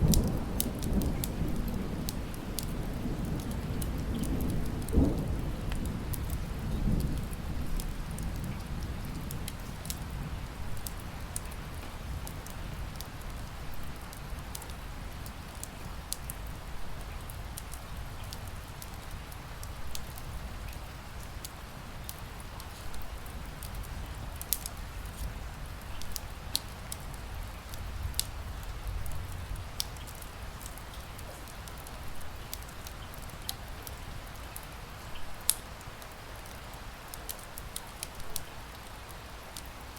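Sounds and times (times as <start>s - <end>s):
thunder rumble: 0.0s - 13.0s
steady rain: 0.0s - 39.9s
wood fire crackling: 0.0s - 39.9s.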